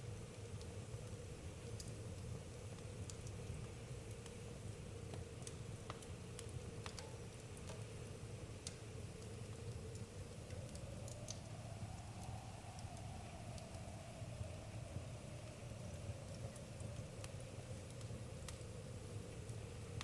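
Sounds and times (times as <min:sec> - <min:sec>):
campfire crackling and popping: 0:00.3 - 0:07.9, 0:08.6 - 0:20.0.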